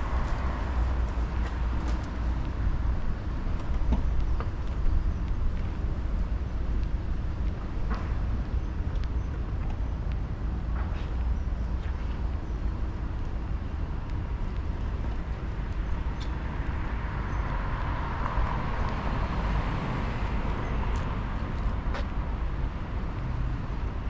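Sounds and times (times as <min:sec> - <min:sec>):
low rumble of street ambience: 0:00.0 - 0:24.0.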